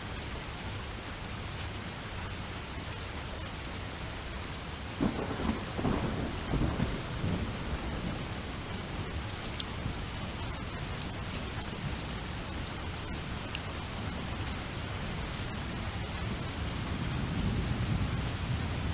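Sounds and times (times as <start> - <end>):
steady rain falling: 0.0 - 18.9
thunder rumbling: 5.0 - 13.3.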